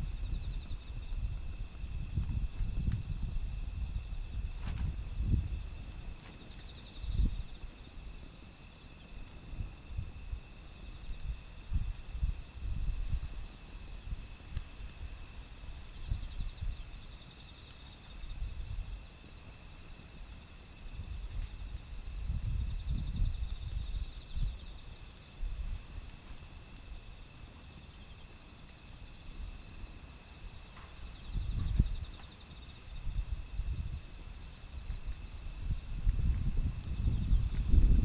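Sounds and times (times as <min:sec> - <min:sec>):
wind rumbling on microphone: 0:00.0 - 0:19.2, 0:20.3 - 0:27.4, 0:29.1 - 0:38.0
insects chirping: 0:00.0 - 0:38.0.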